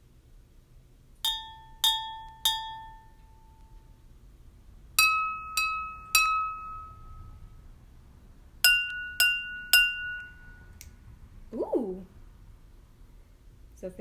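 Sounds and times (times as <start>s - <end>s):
spoon tapping glasses: 1.2s - 3.7s, 5.0s - 7.3s, 8.6s - 10.9s.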